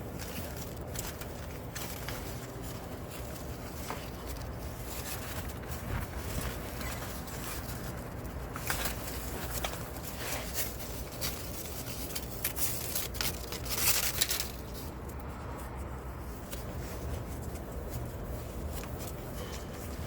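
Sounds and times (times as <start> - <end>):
scraping rustle: 0.0 - 15.6.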